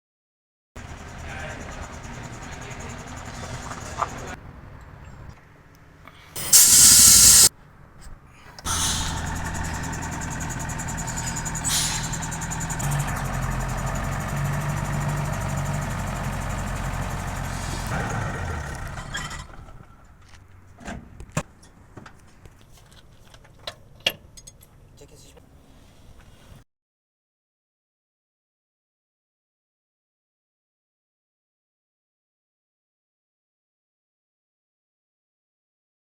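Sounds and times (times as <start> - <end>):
diesel truck engine running: 0.8 - 4.4, 6.4 - 7.5, 8.7 - 19.9
loud burst of hiss: 6.4 - 7.5.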